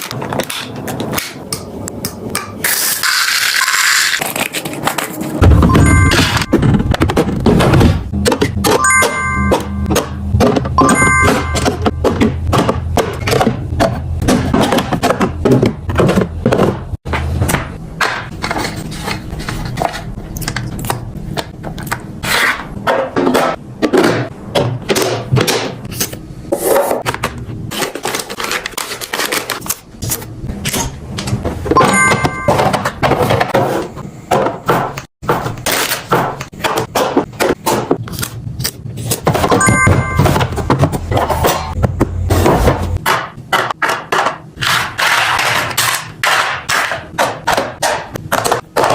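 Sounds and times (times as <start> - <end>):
short electronic beep: 5.6 - 6.6, 10.8 - 11.7, 39.5 - 40.6.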